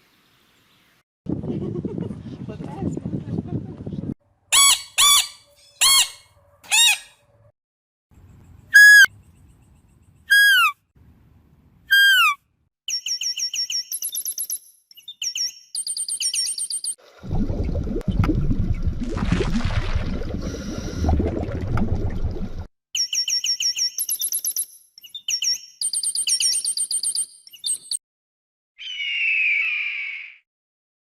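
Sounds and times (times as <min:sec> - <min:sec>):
bird calls falling in pitch: 0:28.8 - 0:30.4.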